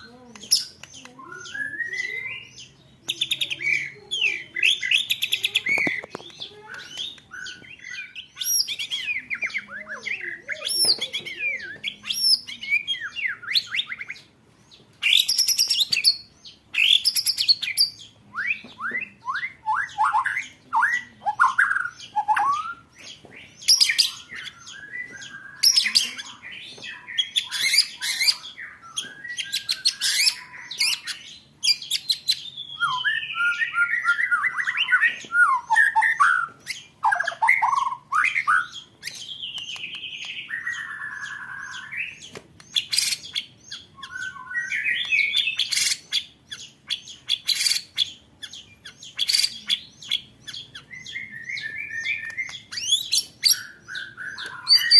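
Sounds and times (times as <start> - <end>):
songbirds trilling: 0.0 - 54.9
rising and falling bird whistles: 1.2 - 2.5, 32.6 - 38.8, 39.6 - 43.2, 44.0 - 46.0, 51.0 - 54.9.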